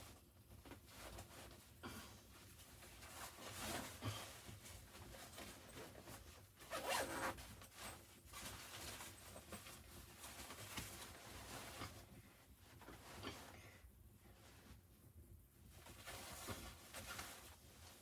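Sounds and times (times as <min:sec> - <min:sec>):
zipper being pulled: 0:06.7 - 0:07.4.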